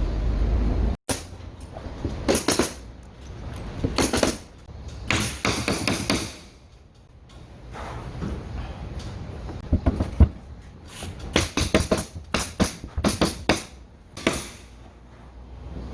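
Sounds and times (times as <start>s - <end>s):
carpentry knocks and clatters: 9.5s - 10.4s.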